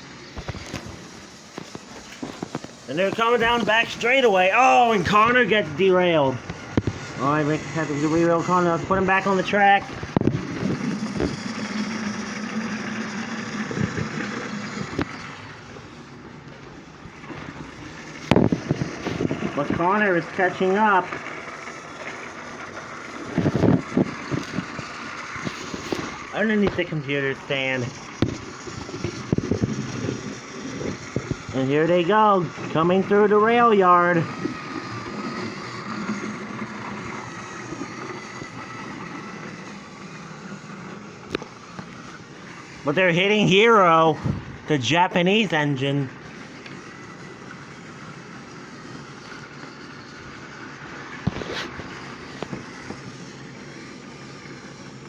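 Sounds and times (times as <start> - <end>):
toy train motors whirring: 0.0 - 55.0
wheels rattling on plastic track: 0.1 - 16.4, 17.2 - 44.2, 44.8 - 55.0.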